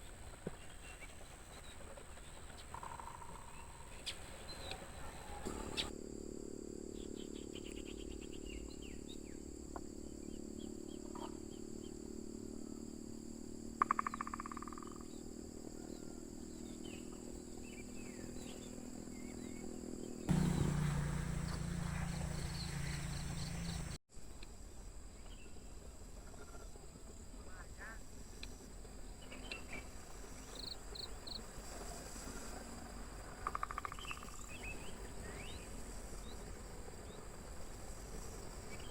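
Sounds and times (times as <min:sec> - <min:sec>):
crickets droning: 0:00.0 - 0:38.9
birds calling: 0:00.1 - 0:05.9, 0:20.3 - 0:24.0.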